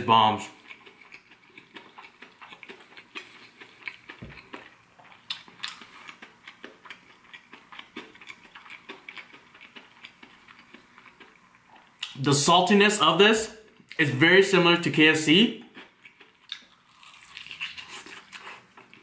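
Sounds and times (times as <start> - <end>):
person chewing crispy food: 0.4 - 12.2, 15.6 - 19.0.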